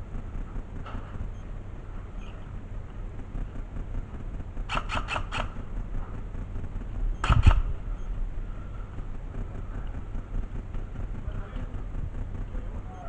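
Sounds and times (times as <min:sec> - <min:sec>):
steady low rumble: 0:00.0 - 0:13.0
airsoft gun shots: 0:04.7 - 0:05.6, 0:07.2 - 0:07.8.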